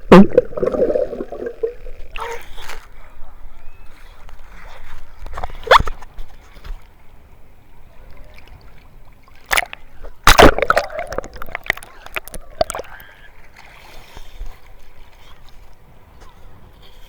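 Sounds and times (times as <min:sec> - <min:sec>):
sea water splashing: 0:00.0 - 0:02.6, 0:08.4 - 0:16.7.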